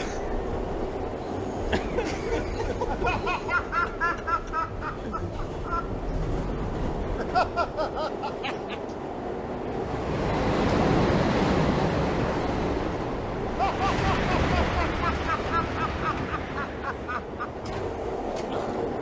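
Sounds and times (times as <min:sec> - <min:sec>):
subway car rumble: 0:00.0 - 0:19.0
man laughing: 0:01.6 - 0:06.0, 0:07.2 - 0:08.9, 0:13.5 - 0:17.6.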